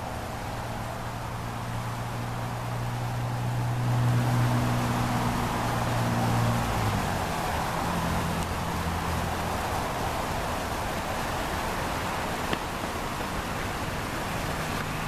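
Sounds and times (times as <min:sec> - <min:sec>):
low engine hum: 0:00.0 - 0:15.0
steady hiss: 0:05.1 - 0:15.0.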